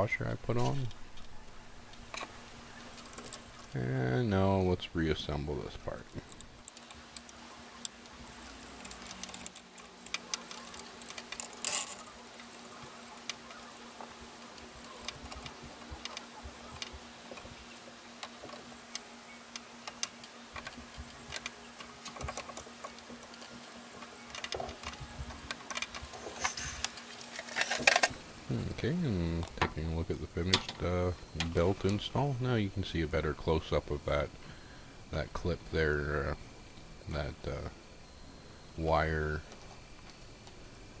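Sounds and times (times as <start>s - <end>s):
faint steady hum: 0.0s - 41.0s
parts clattering: 24.3s - 28.2s.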